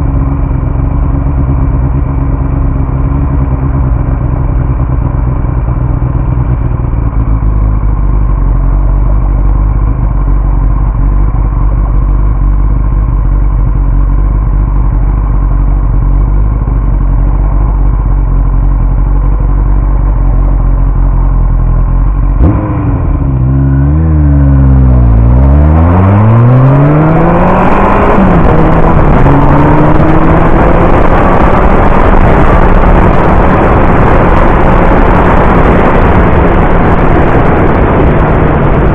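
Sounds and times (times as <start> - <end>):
motorcycle engine: 0.0 - 38.9
wind rushing on camera: 24.0 - 38.9.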